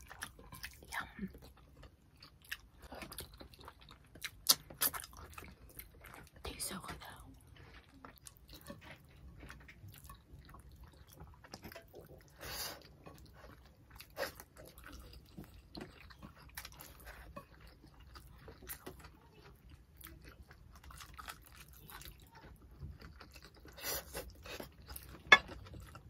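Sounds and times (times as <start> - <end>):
people chewing and lip smacking: 0.0 - 26.0
wet mouth clicks: 4.4 - 5.0.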